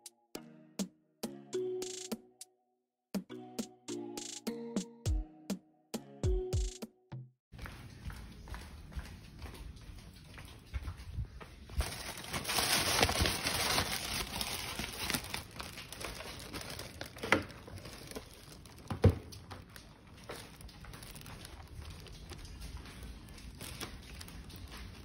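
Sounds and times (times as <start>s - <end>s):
crinkling: 10.0s - 25.0s.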